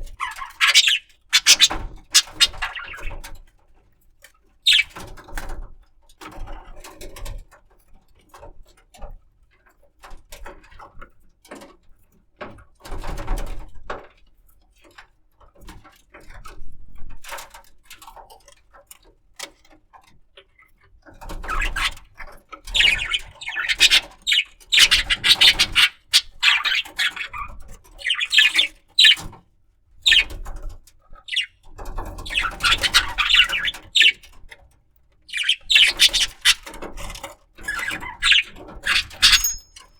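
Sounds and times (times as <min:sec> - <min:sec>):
budgerigar chattering: 0:00.0 - 0:03.2, 0:04.7 - 0:05.0, 0:22.7 - 0:29.3, 0:30.0 - 0:30.3, 0:31.2 - 0:31.6, 0:32.2 - 0:34.3, 0:35.3 - 0:36.8, 0:37.7 - 0:39.9.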